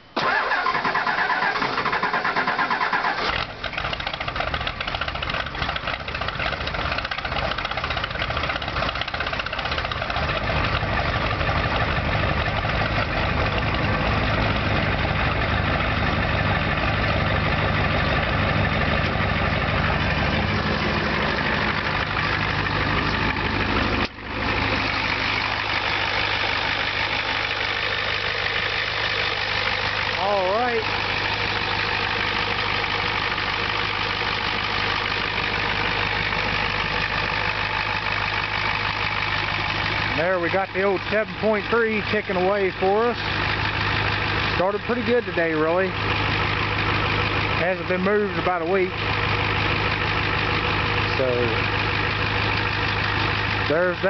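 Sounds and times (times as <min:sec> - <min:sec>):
diesel engine idling: 0:00.0 - 0:54.0
starter cranking: 0:00.2 - 0:15.8.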